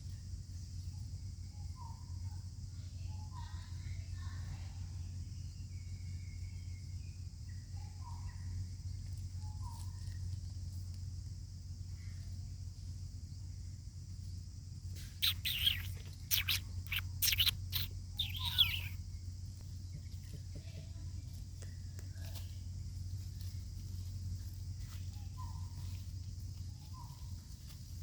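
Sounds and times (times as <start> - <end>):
faint bird chirps: 0.8 - 10.4, 15.0 - 22.7, 24.9 - 27.4
high insect drone: 4.9 - 28.0
short high-pitched animal calls: 15.2 - 19.0.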